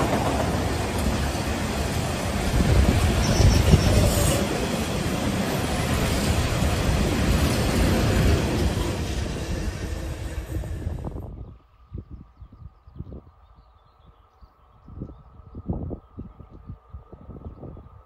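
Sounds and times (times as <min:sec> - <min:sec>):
train passing close by: 0:00.0 - 0:11.6.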